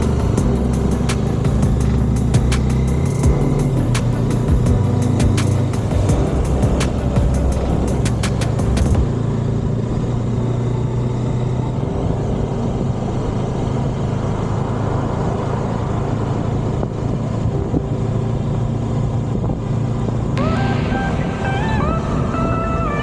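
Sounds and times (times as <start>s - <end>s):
sharp ticks: 0.0s - 9.0s
motorcycle engine running: 0.0s - 10.3s
road and wind noise: 0.0s - 20.4s.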